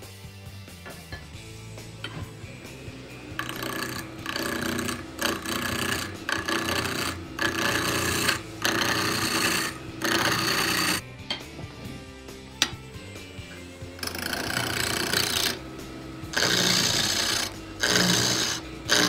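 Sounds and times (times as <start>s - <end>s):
background music: 0.0s - 19.0s
wood lathe tool rasping: 1.9s - 11.0s, 13.3s - 19.0s.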